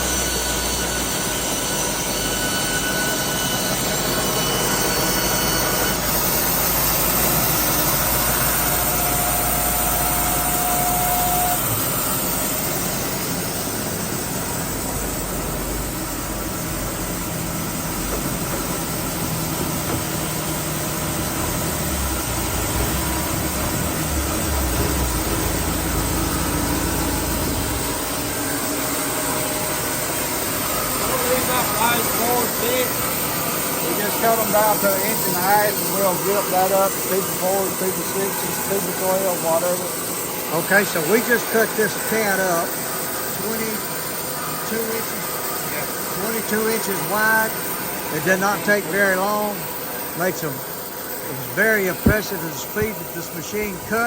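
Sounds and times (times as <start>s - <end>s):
band sawmill sawing wood: 0.0s - 54.0s
low engine hum: 12.2s - 31.1s.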